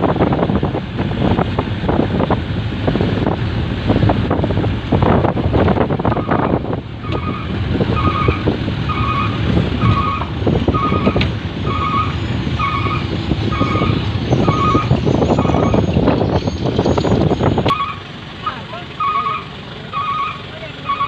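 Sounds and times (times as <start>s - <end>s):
wind noise: 0.0s - 18.1s
back-up alarm beeping: 6.1s - 18.0s, 19.0s - 21.0s.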